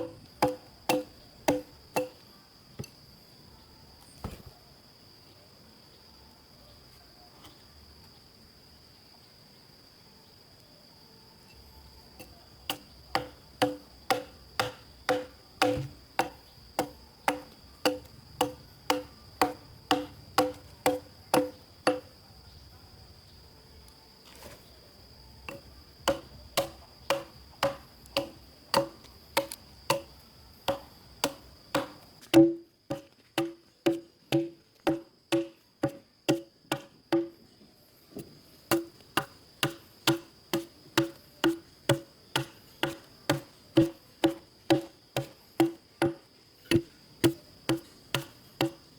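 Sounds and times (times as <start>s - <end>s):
insect droning: 0.0s - 48.9s
tool knocking on wood: 12.7s - 22.0s, 30.7s - 37.3s.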